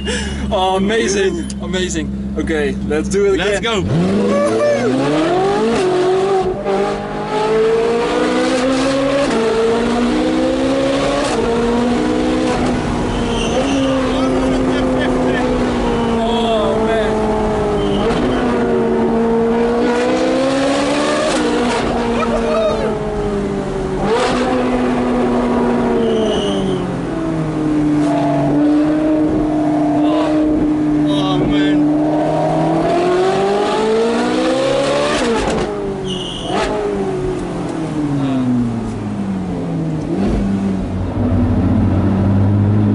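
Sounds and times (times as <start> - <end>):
sports car engine accelerating hard: 0.1 - 42.9.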